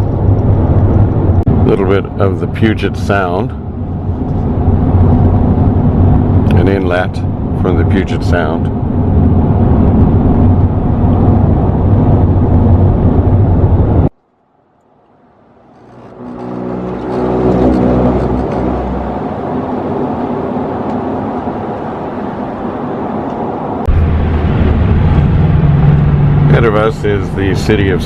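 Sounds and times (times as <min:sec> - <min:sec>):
car driving road noise: 0:00.0 - 0:28.0.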